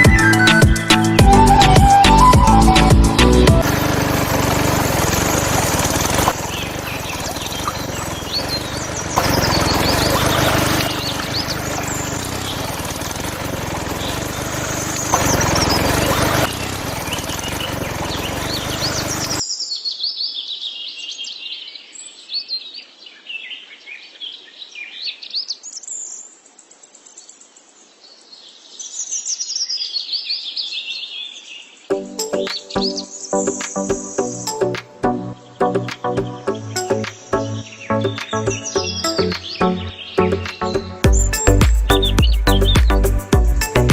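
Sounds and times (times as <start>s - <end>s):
music: 0.0s - 3.7s, 31.9s - 43.9s
birds chirping and singing: 0.0s - 26.3s, 28.6s - 43.9s.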